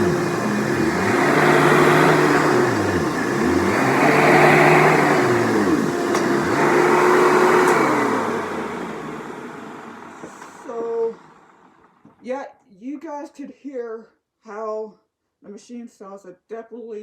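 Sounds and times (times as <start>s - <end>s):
upright vacuum cleaner running: 0.0s - 12.2s
person talking: 10.6s - 11.2s, 12.2s - 17.0s.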